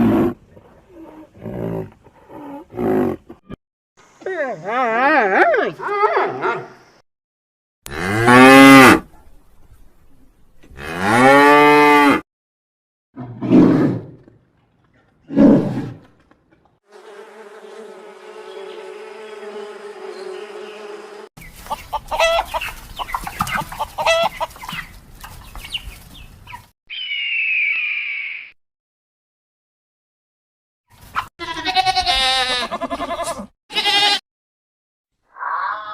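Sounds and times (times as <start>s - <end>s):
high animal call: 35.3s - 35.9s.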